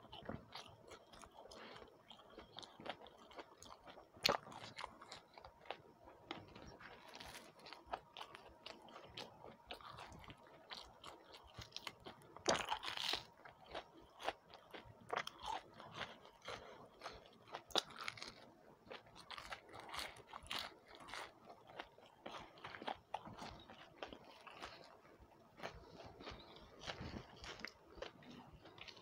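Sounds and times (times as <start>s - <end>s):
person chewing crunchy food: 0.0s - 29.0s.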